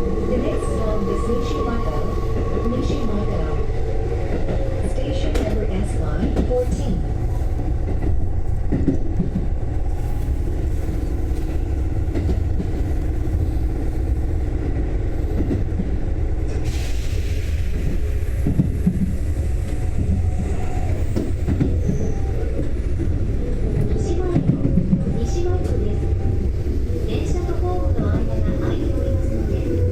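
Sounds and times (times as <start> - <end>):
train wheels rumbling on track: 0.0 - 29.9
hiss: 16.6 - 18.4.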